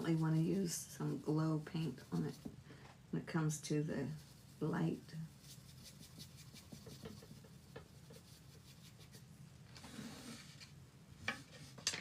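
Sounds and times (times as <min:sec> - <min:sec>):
paintbrush strokes on wood: 0:00.0 - 0:02.5, 0:04.0 - 0:09.3.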